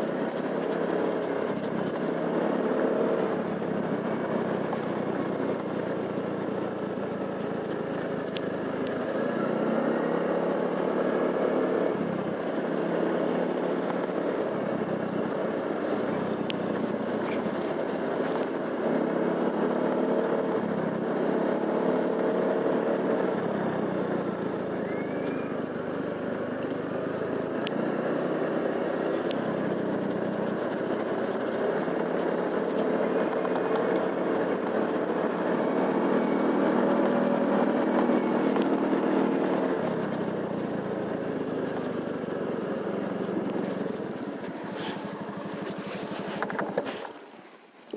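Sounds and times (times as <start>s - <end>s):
motorcycle engine running: 0.0s - 47.2s.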